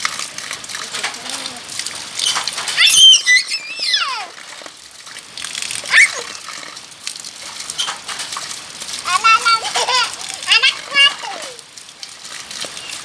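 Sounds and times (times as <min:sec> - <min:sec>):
heavy rain: 0:00.0 - 0:13.0
children squealing: 0:01.2 - 0:04.5, 0:05.9 - 0:06.4, 0:09.1 - 0:11.6.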